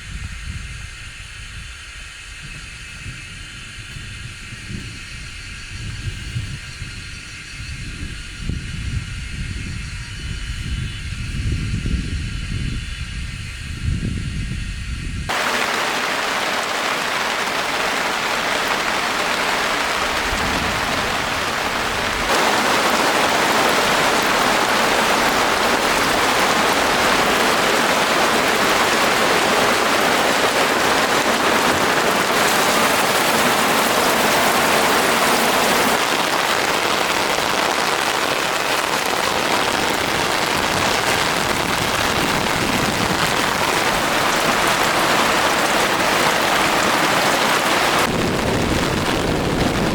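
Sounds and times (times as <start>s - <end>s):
heavy rain falling: 15.3s - 49.9s.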